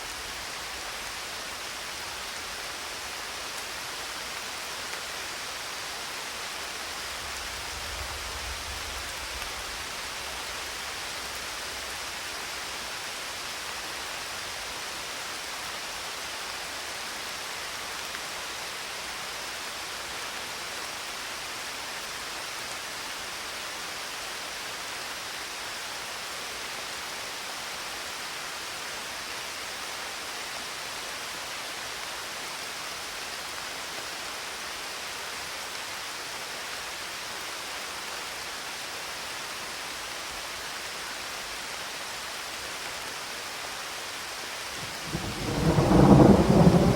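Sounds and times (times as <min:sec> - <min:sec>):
steady rainfall: 0:00.0 - 0:46.9
distant thunder rumble: 0:44.8 - 0:46.9.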